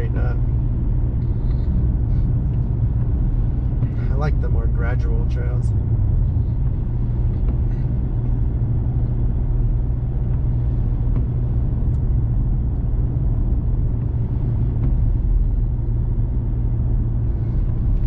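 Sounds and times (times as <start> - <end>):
diesel engine rumble: 0.0 - 18.0.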